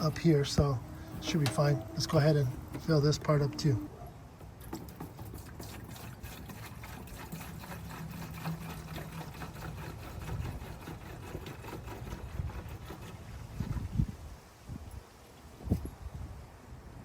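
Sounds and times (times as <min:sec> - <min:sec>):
engine humming: 0:00.0 - 0:04.7
liquid pouring into reservoir: 0:00.0 - 0:12.8.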